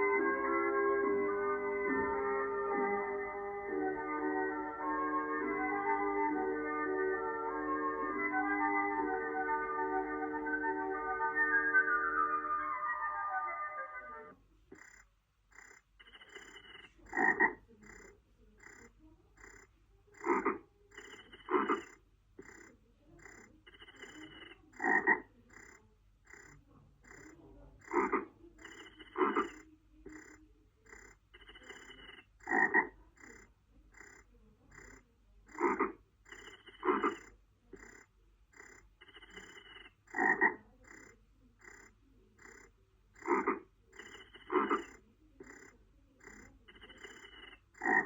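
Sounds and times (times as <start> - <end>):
frogs croaking: 0.0 - 48.0.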